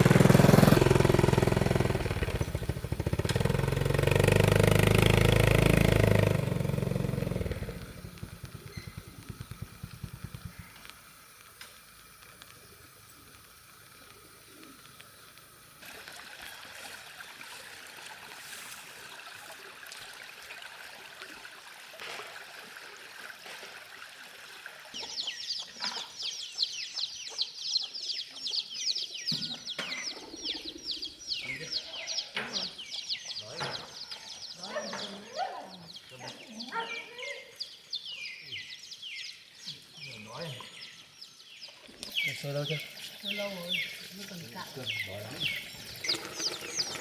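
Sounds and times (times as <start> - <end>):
engine running: 0.0 - 13.5, 43.3 - 47.0
birds chirping: 0.0 - 15.8, 24.9 - 47.0.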